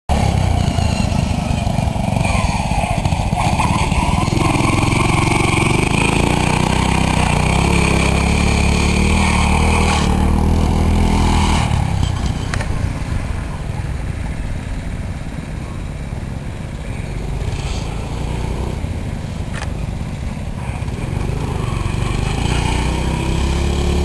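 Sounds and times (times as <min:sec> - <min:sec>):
lawn mower engine accelerating: 0:00.1 - 0:12.8.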